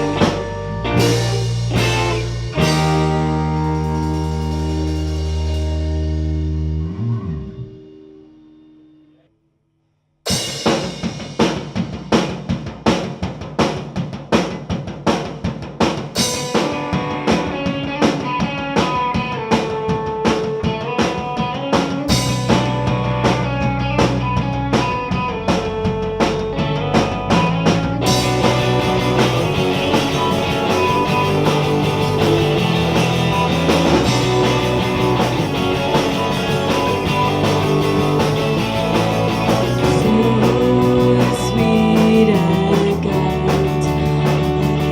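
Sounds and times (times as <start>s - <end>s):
drums beating: 0.0s - 6.3s, 10.3s - 44.9s
bass guitar: 0.0s - 8.9s, 16.9s - 44.9s
electric guitar notes: 0.0s - 9.3s, 16.7s - 44.9s.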